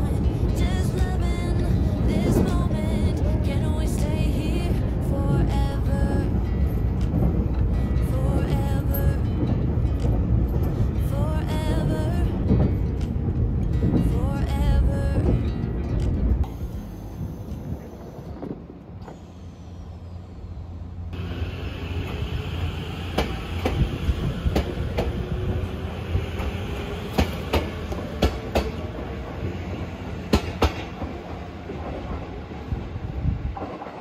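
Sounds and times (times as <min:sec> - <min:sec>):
wheels clacking over rail joints: 0:00.0 - 0:17.0, 0:21.2 - 0:34.0
electric train motor rising in pitch: 0:16.5 - 0:31.4.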